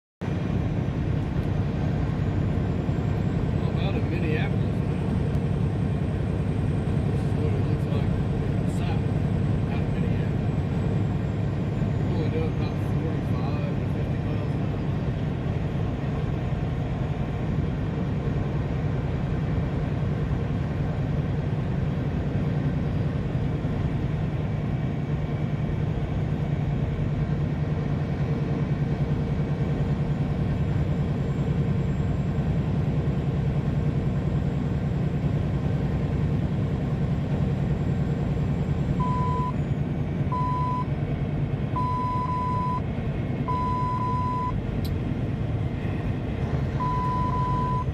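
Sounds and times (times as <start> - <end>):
vehicle drone on highway: 0.2 - 47.9
electronic beeps: 39.0 - 39.6, 41.8 - 42.8, 43.5 - 44.6, 46.8 - 47.9.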